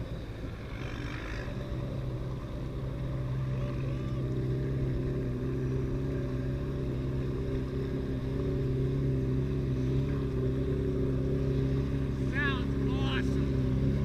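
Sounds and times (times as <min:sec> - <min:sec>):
car exhaust steady revs: 0:00.0 - 0:14.0.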